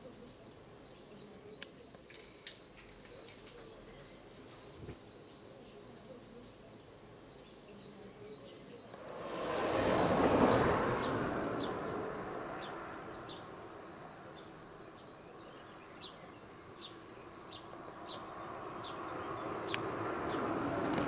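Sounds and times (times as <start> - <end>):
rushing noise: 9.0 - 15.0
small bird chirping: 10.4 - 21.0.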